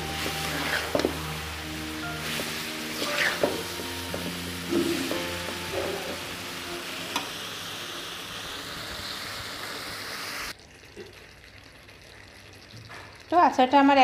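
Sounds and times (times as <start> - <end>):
pickle sizzling in hot oil: 0.0 - 14.0
metal spatula stirring in pan: 0.1 - 1.2, 2.2 - 6.3.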